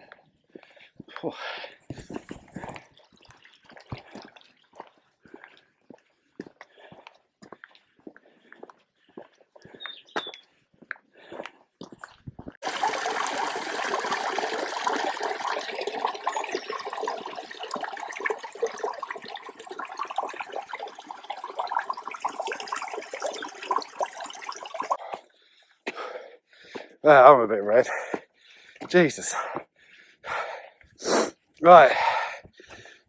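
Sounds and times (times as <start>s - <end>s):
running water rushing: 12.6s - 25.0s.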